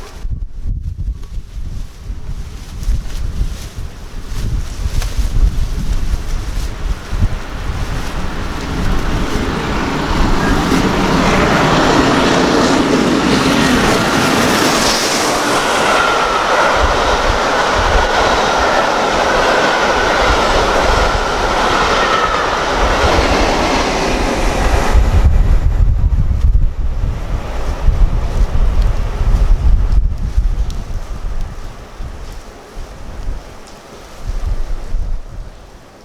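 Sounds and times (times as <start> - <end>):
train passing at speed: 5.6 - 32.7.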